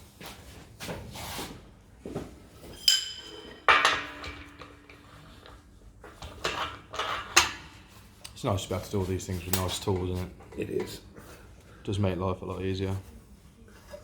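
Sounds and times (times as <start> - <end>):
metal tools clanking: 2.6 - 5.3
metal clatter ringing: 2.7 - 5.1.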